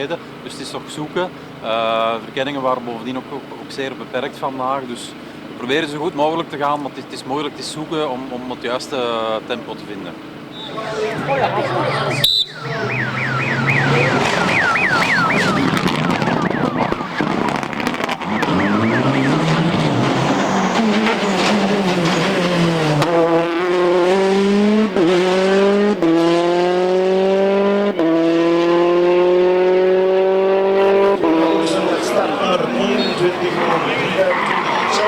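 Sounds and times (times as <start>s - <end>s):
rally car engine accelerating: 10.6s - 35.0s.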